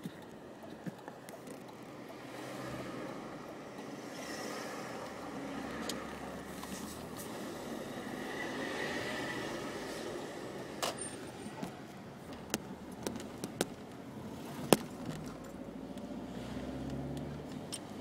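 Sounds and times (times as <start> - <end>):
car engine running with whine: 0.0 - 18.0.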